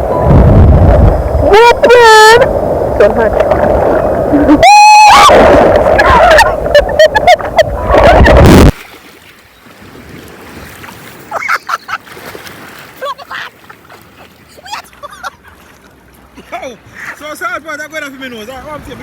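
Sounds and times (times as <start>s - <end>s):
sea water splashing: 0.0s - 17.3s
person calling out: 4.4s - 5.3s.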